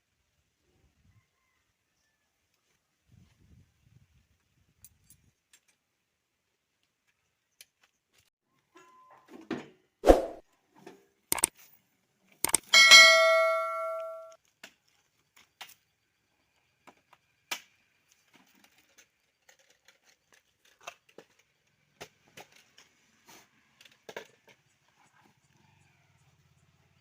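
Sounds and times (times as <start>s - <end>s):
sharp clicks: 11.3s - 11.5s, 12.4s - 12.7s
loud metallic clang: 12.8s - 14.3s.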